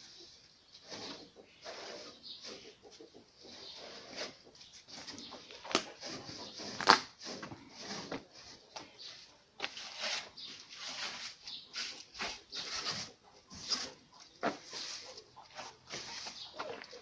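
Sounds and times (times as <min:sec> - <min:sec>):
broom sweeping floor: 0:05.9 - 0:16.8.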